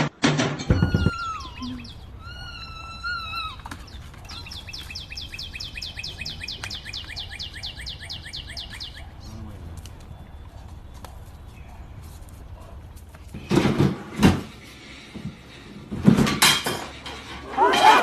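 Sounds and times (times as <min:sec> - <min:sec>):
bird whistling and chirping: 0:00.7 - 0:09.2.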